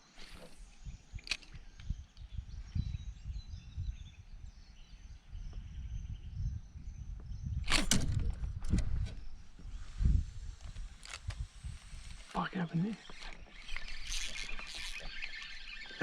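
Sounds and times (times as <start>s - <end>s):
birds chirping faintly: 0.0s - 16.0s
wind buffeting microphone: 0.1s - 16.0s.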